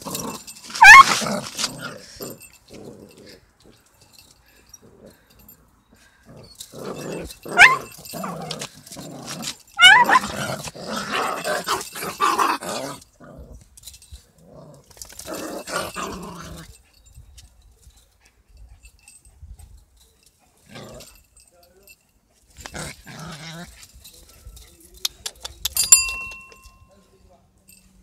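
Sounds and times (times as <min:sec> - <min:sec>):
dogs growling: 0:00.0 - 0:03.8, 0:04.8 - 0:13.7, 0:14.4 - 0:16.7, 0:20.6 - 0:21.2, 0:22.6 - 0:23.9
dog yelps: 0:00.8 - 0:01.2, 0:07.6 - 0:07.9, 0:09.8 - 0:10.4.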